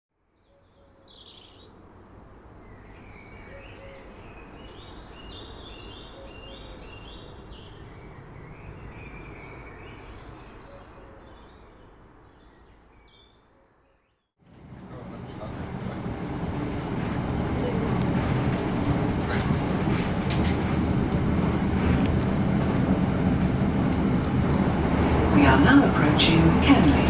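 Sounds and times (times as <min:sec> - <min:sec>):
birds singing and chirping: 0:00.4 - 0:14.3
steady background rush: 0:14.6 - 0:27.0.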